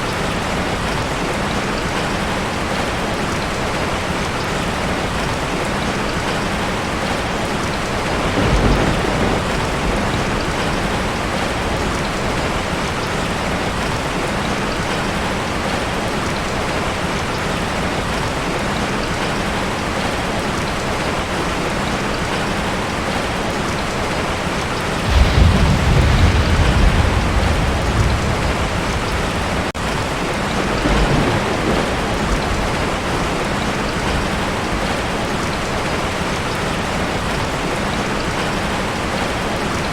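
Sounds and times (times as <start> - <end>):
heavy rain on a tin roof: 0.0 - 39.9
thunder rumbling: 7.7 - 13.8, 25.0 - 35.5.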